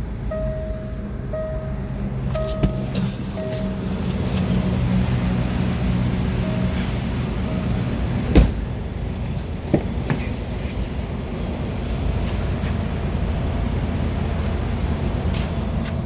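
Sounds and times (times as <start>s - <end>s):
car engine idling: 0.0s - 16.0s
short chime-like beeps: 0.3s - 4.2s.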